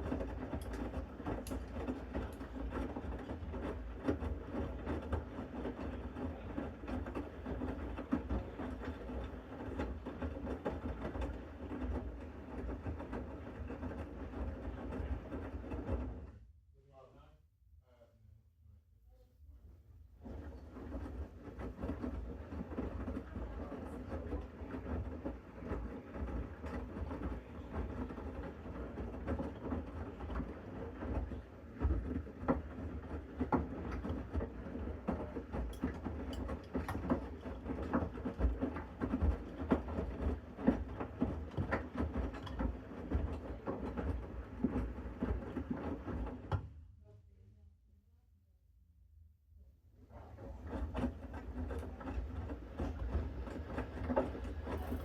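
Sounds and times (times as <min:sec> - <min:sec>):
laundry tumbling with clicks: 0:20.2 - 0:46.7.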